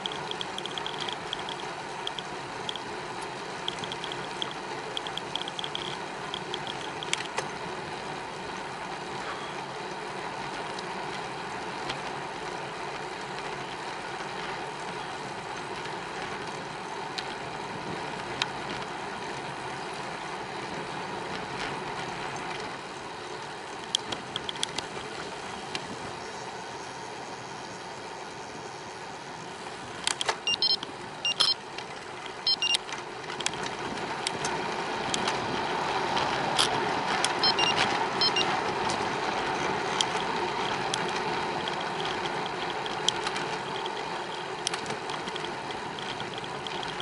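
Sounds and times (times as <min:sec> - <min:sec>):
freewheel ticking: 0:00.0 - 0:09.2
bicycle tyres rolling: 0:00.0 - 0:47.0.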